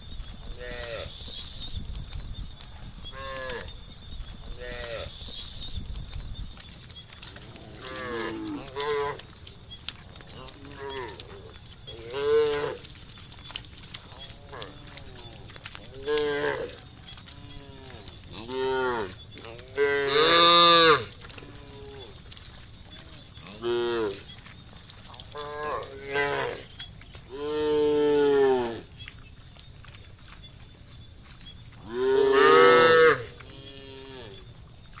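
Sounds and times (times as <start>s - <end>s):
cows mooing: 7.4s - 9.2s, 10.2s - 13.0s, 14.1s - 22.2s, 23.0s - 24.3s, 25.2s - 26.7s, 27.3s - 28.9s, 31.8s - 34.4s.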